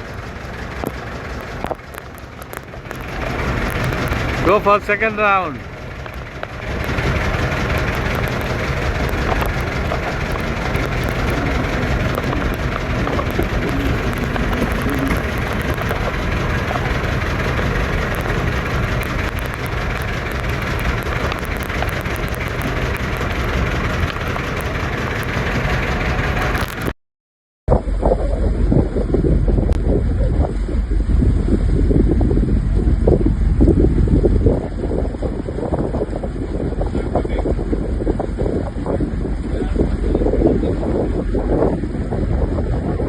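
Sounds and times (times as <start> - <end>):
outboard engine running: 0.0 - 26.9, 27.7 - 43.0
water rushing: 0.0 - 26.9
wind: 0.0 - 27.0, 27.7 - 43.0.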